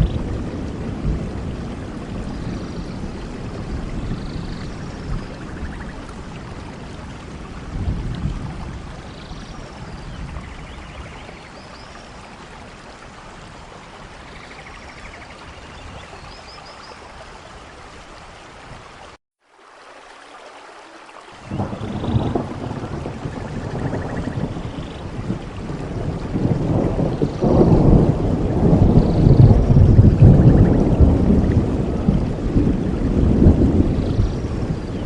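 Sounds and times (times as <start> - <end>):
low rumble of thunder: 0.0 - 17.0, 21.4 - 35.0
steady rain: 0.0 - 35.0.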